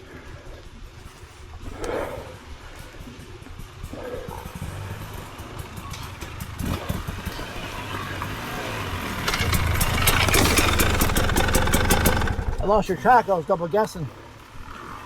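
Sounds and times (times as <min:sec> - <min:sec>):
vehicle engine idling: 0:03.6 - 0:13.5.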